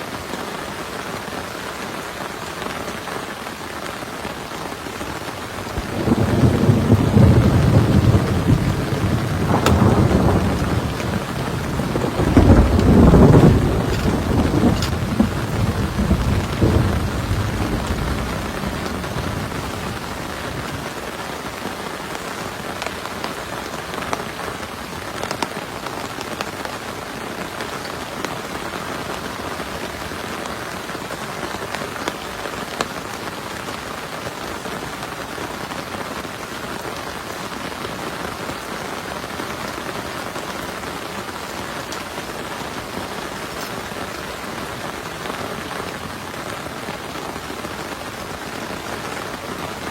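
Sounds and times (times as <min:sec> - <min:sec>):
heavy rain falling: 0:00.0 - 0:49.9
raindrop taps: 0:05.6 - 0:19.2, 0:25.2 - 0:26.6
thunder rumble: 0:05.6 - 0:20.9.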